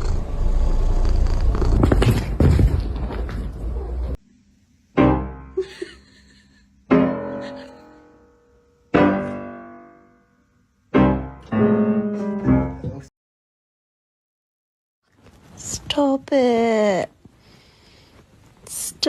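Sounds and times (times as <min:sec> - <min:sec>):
piano chords ringing: 0:04.9 - 0:05.7, 0:06.9 - 0:13.1
quick piano notes: 0:08.9 - 0:10.2, 0:10.9 - 0:13.1.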